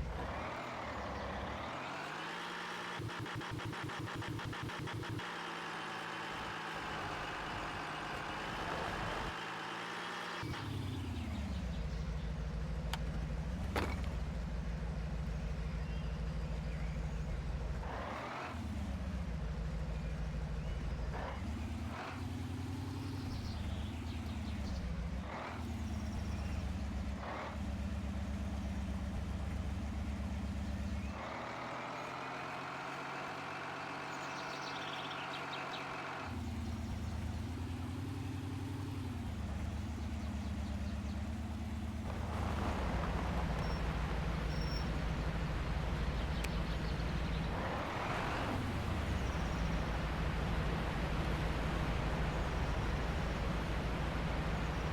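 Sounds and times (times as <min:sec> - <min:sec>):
heavy truck engine under load: 0:27.6 - 0:54.9.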